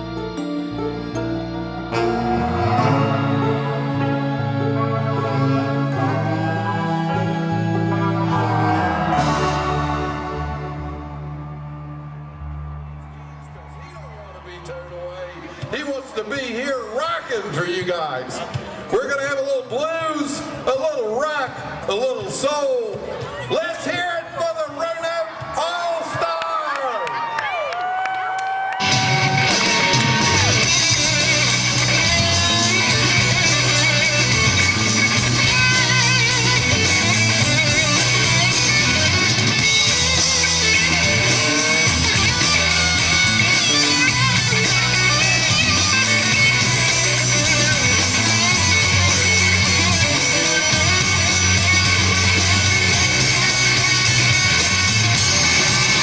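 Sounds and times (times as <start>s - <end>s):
electric guitar: 0.0s - 13.6s, 28.6s - 56.0s
bass guitar: 0.0s - 14.0s, 28.8s - 56.0s
drums with driving beat: 28.8s - 56.0s.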